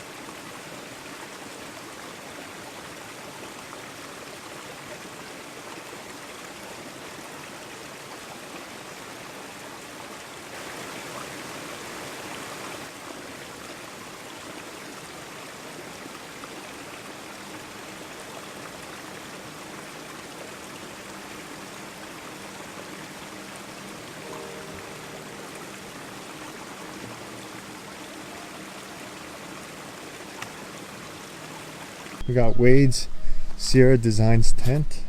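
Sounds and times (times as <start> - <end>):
running water: 0.0 - 32.2.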